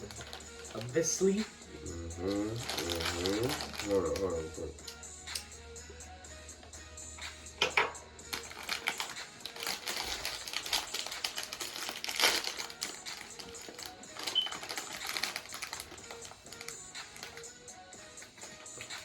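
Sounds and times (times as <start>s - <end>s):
plastic packaging crinkling: 0.0s - 1.1s, 2.3s - 4.4s, 8.3s - 17.5s.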